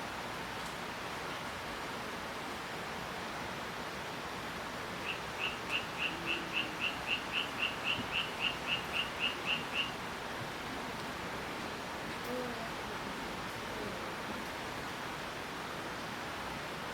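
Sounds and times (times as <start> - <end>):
cricket chirping: 5.0 - 10.0.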